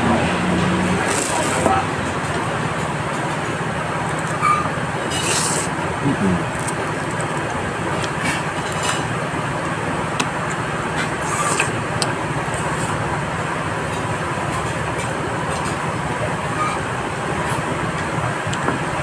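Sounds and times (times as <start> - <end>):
vehicle and road noise: 0.0 - 19.0.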